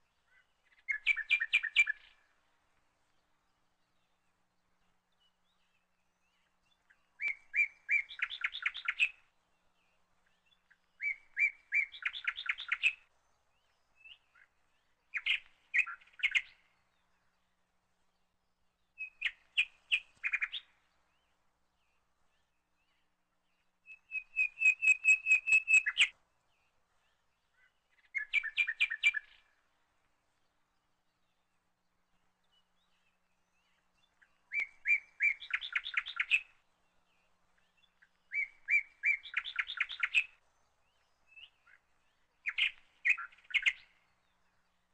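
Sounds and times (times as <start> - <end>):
songbird chirping: 0.0 - 44.9.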